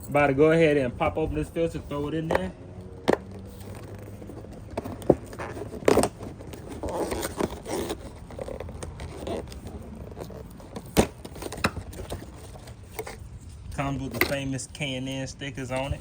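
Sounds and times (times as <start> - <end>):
packaging rustling and tearing: 3.3 - 13.2.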